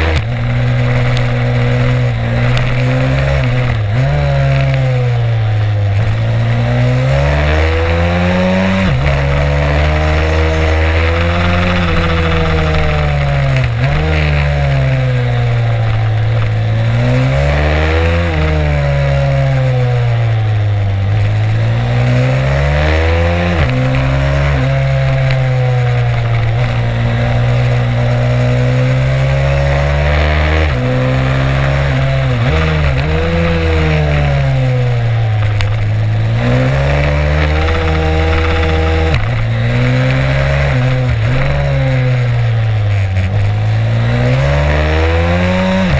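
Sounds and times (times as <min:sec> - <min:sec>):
motorbike engine revving: 0:00.0 - 0:45.9.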